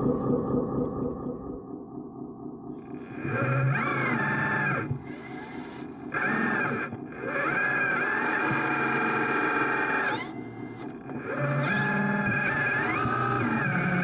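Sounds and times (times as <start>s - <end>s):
small electric motor whining: 3.0s - 14.0s.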